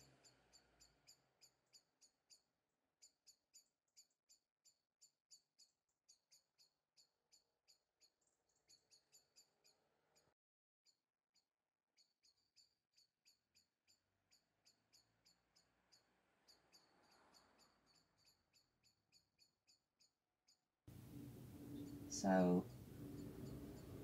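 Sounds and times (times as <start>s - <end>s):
faint bird chirping: 0.0s - 10.3s, 12.0s - 24.0s.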